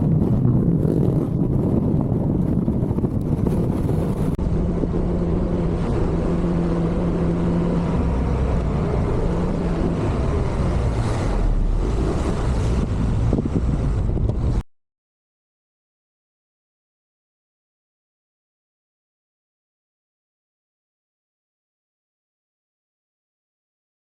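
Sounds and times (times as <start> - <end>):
wind buffeting microphone: 0.0 - 14.6.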